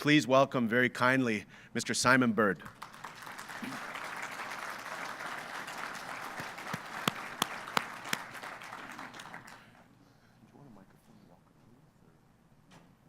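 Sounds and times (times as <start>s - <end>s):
single loud claps: 2.6s - 9.6s
audience applauding: 2.7s - 9.9s.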